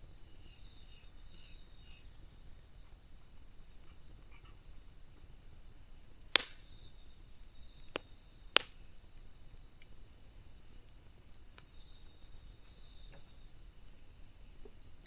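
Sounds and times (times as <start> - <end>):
campfire crackling: 0.0 - 15.0
sharp pops of burning wood: 5.2 - 14.9.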